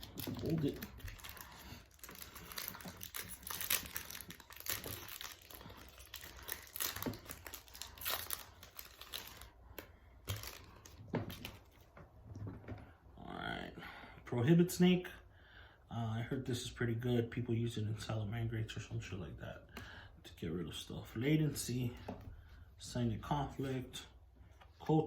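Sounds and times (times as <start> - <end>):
foil wrapper crinkling and tearing: 0.0 - 11.9.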